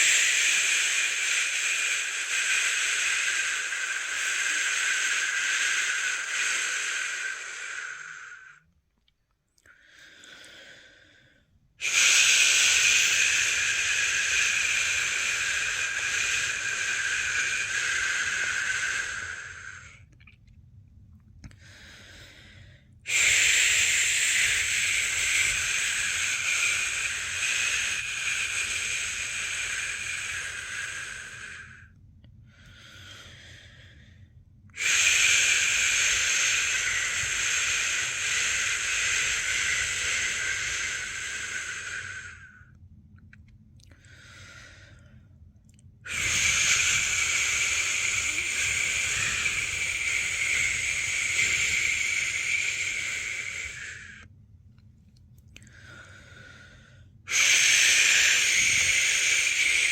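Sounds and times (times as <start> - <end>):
person shushing: 11.8 - 20.0, 23.1 - 31.8, 46.1 - 54.2, 57.3 - 59.9
breath drawn in: 55.6 - 59.9.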